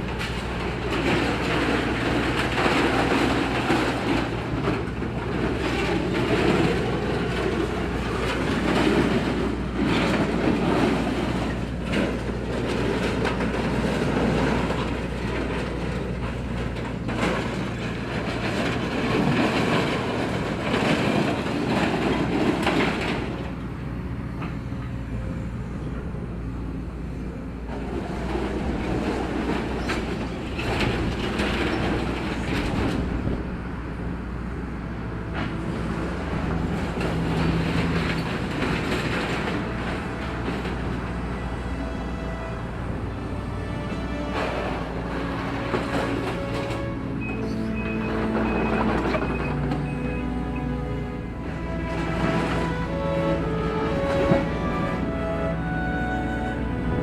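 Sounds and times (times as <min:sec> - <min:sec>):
scrap metal grinding clatter: 0:00.0 - 0:23.4, 0:35.3 - 0:55.1
excavator diesel engine running: 0:00.0 - 0:57.0.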